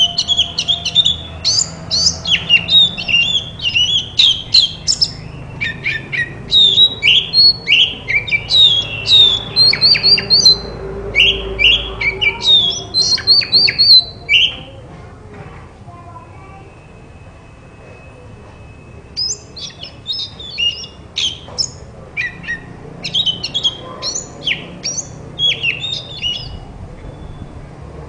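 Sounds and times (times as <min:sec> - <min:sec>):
bird singing whistled notes: 0:00.0 - 0:14.7, 0:16.6 - 0:27.8.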